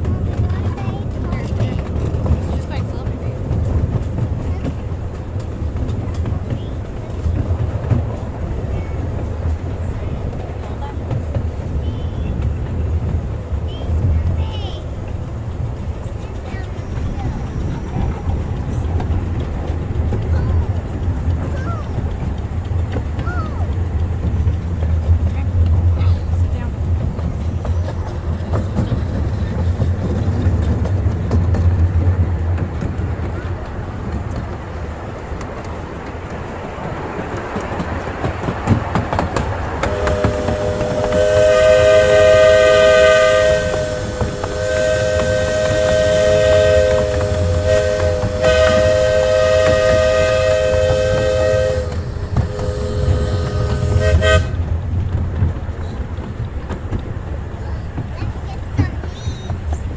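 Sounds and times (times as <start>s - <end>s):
train rumbling: 0.0s - 59.9s
wheels clicking over rail joints: 0.0s - 59.9s
steam locomotive chime whistle: 39.8s - 54.7s.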